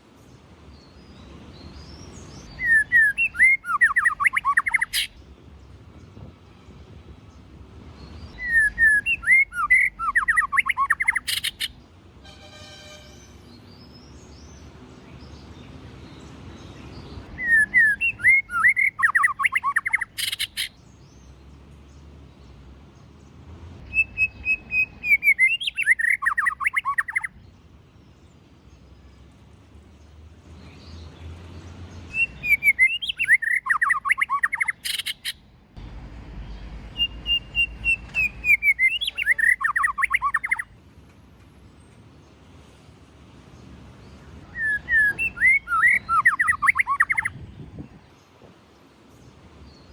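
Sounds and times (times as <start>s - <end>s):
bird singing whistled notes: 0.7s - 5.2s, 8.0s - 11.8s, 16.1s - 21.2s, 23.8s - 27.4s, 32.1s - 35.5s, 36.9s - 40.7s, 44.4s - 47.9s.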